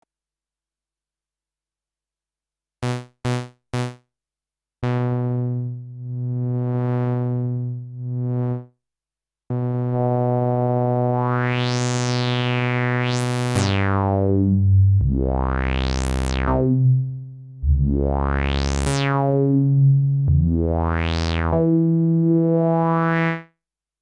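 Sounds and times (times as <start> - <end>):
synth sawtooth note with filter sweeps: 10.0 - 23.4.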